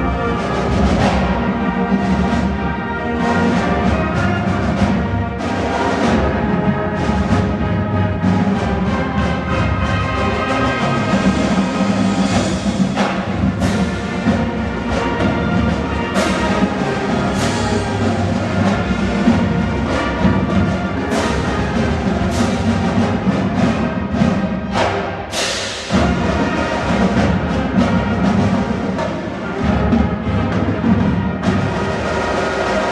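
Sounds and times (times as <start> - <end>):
drums and timpani: 0.0 - 32.9
percussion hits: 0.0 - 32.9.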